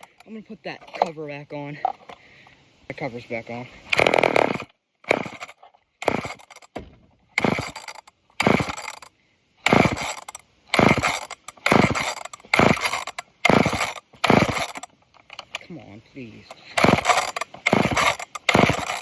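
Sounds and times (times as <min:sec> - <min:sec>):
chainsaw recoil starter pulls: 0:00.0 - 0:01.2, 0:03.9 - 0:06.8, 0:07.4 - 0:15.8, 0:16.5 - 0:19.0
engine turning over: 0:03.9 - 0:06.8, 0:07.4 - 0:15.4, 0:16.5 - 0:19.0.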